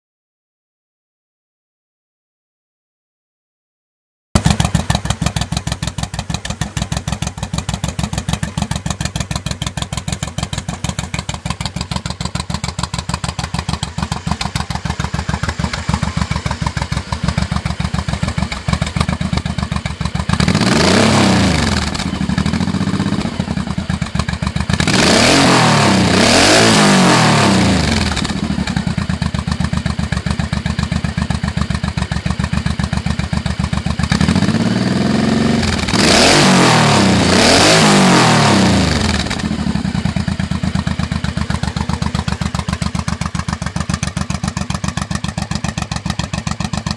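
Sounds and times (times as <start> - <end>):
motorcycle engine idling and revving: 4.4 - 46.9.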